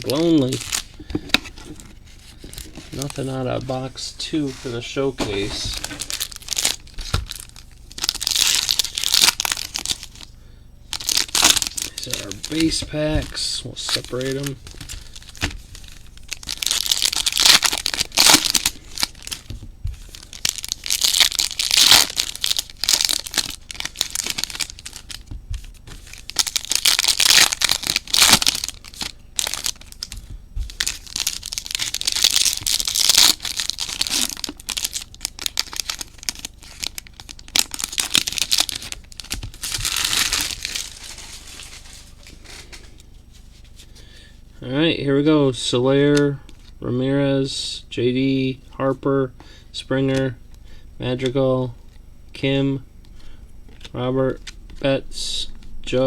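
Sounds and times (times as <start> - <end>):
foil wrappers tearing and crinkling: 0.0 - 10.3, 10.9 - 43.0.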